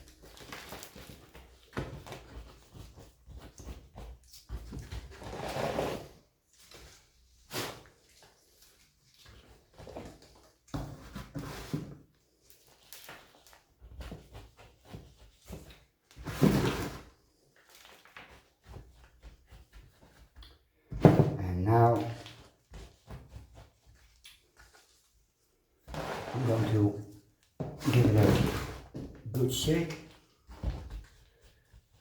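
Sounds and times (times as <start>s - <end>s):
potting mix rustling and scraping: 0.0s - 32.0s.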